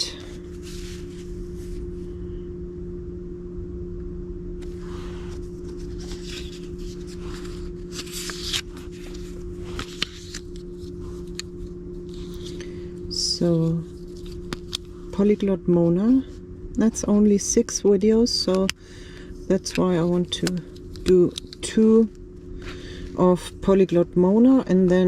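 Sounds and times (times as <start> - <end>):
steady low hum: 0.0 - 25.0
paper cards rustling: 0.1 - 1.8, 4.6 - 16.2, 18.4 - 23.1.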